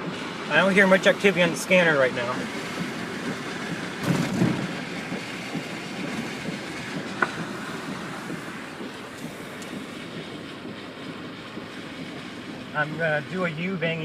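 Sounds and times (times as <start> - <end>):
road and wind noise in car: 0.0 - 14.0
car bumps: 2.4 - 13.6.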